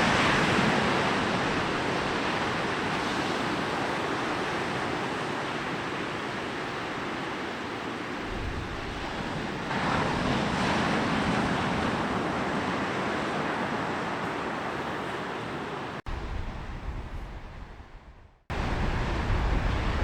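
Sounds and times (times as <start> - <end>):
sea waves breaking on beach: 0.0 - 16.1
wind rumble on microphone: 8.2 - 14.4, 16.1 - 20.0.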